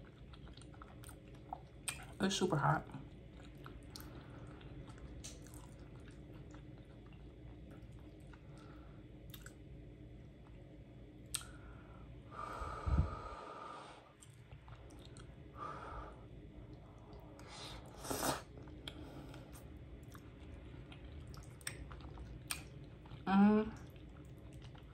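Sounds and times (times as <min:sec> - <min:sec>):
person chewing: 0:00.0 - 0:02.2, 0:03.1 - 0:09.6, 0:14.1 - 0:15.5, 0:16.7 - 0:23.2, 0:23.8 - 0:24.9
breathy rush of air: 0:11.7 - 0:14.1.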